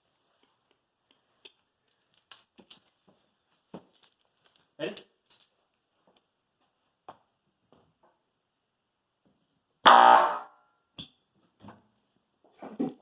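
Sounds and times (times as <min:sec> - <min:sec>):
loud harsh loudspeaker buzz: 0:09.9 - 0:10.5.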